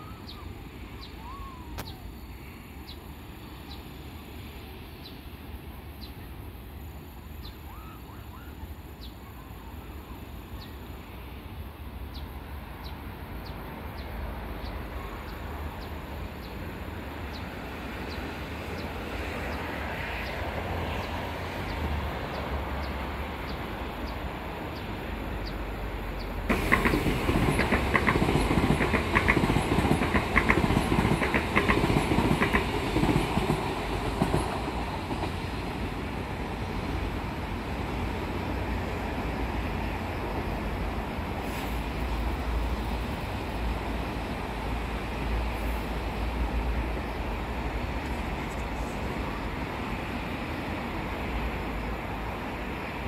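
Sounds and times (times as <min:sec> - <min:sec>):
electric train rumble: 0:09.6 - 0:53.0
wheels clacking over rail joints: 0:26.5 - 0:37.2.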